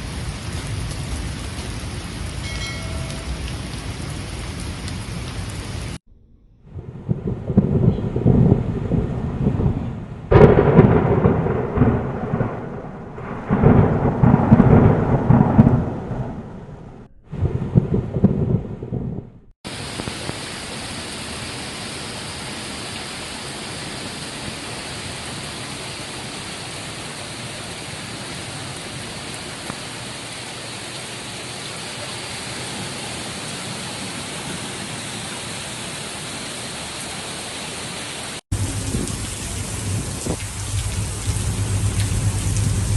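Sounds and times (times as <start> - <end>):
heavy rain hissing: 0.0 - 6.0, 19.7 - 42.9
thunder rumbling: 0.0 - 20.2, 38.5 - 42.9.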